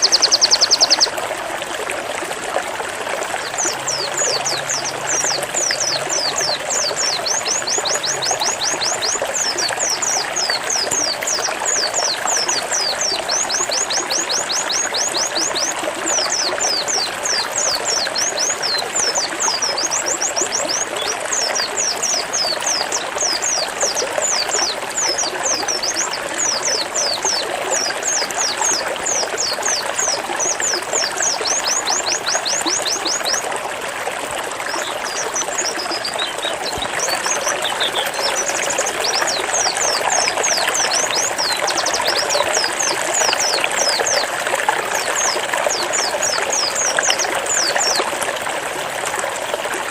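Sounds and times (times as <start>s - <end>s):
water trickling: 0.0s - 49.9s.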